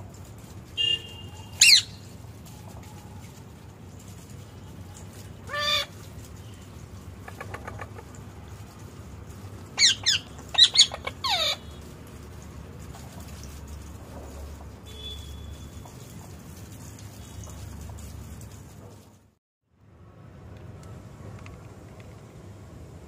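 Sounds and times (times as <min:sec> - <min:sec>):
parrot squawking: 0:01.6 - 0:02.0, 0:05.5 - 0:06.0, 0:09.8 - 0:11.7.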